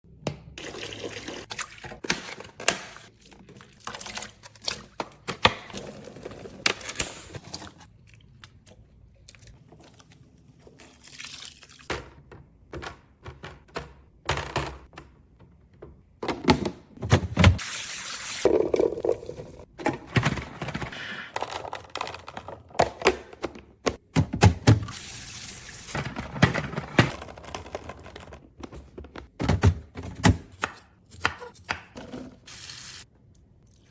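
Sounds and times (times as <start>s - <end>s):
plastic bins clicking and clattering: 18.6s - 24.9s, 25.9s - 30.6s.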